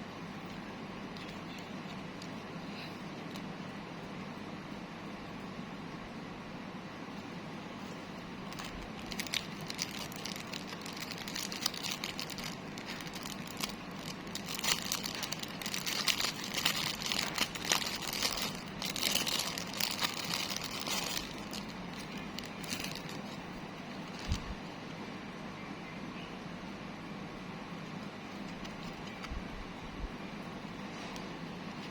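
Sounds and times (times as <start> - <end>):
plastic packaging crinkling: 7.8 - 24.6.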